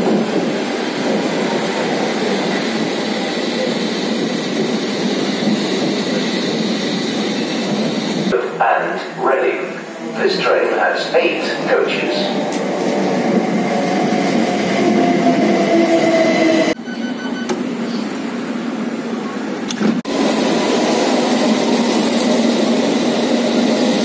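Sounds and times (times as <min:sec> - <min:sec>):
train pulling into station: 0:00.0 - 0:24.0
train running loudly: 0:00.0 - 0:24.0
short beeps: 0:16.8 - 0:17.6.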